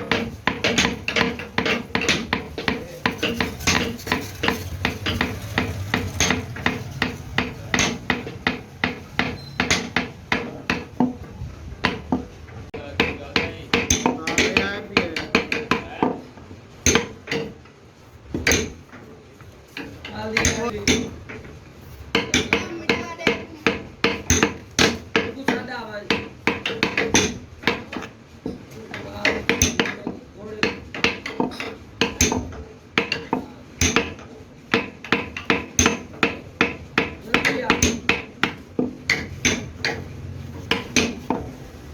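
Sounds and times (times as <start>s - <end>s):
metal striking metal: 0.0s - 11.1s
metal-on-metal clanks: 0.0s - 41.6s.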